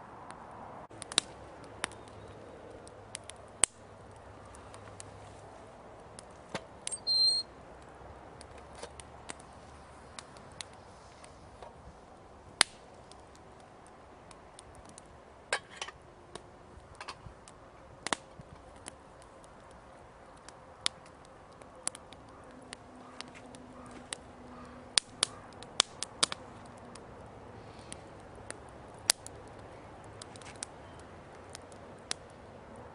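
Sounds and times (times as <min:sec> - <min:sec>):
campfire crackling: 0:00.0 - 0:32.9
sharp snaps and pops: 0:00.3 - 0:05.4, 0:06.0 - 0:11.8, 0:12.6 - 0:15.2, 0:16.3 - 0:32.5
high-pitched whistle-like tone: 0:06.9 - 0:07.5.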